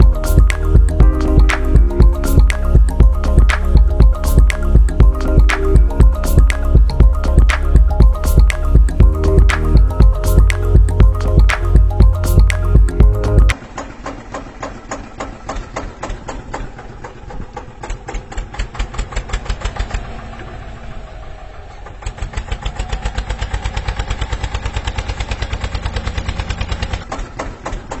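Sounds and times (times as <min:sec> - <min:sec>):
small engine chugging: 0:13.1 - 0:28.0.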